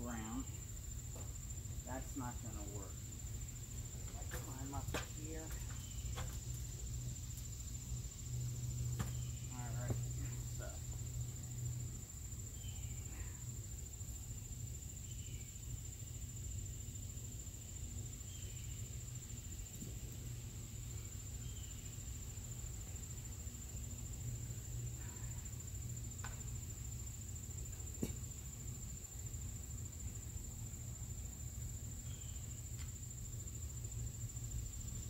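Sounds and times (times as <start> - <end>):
insect trilling: 1.6 - 19.7.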